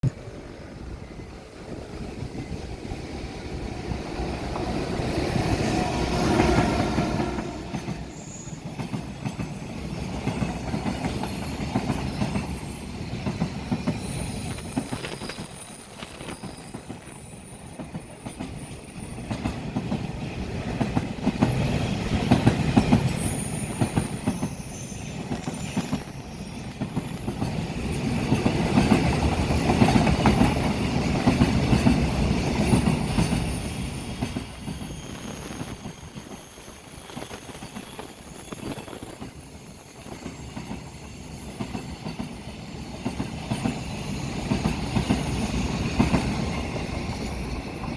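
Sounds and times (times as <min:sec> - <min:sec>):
train wheels rumbling on rail: 0:00.0 - 0:47.9
high wheel squeal: 0:05.6 - 0:20.6, 0:22.8 - 0:45.7
clickety-clack of wagons: 0:05.6 - 0:47.9.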